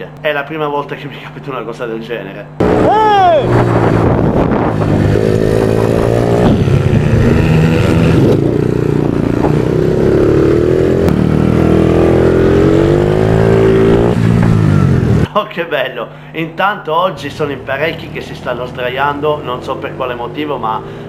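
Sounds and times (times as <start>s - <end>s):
motorcycle engine revving: 2.6s - 15.3s.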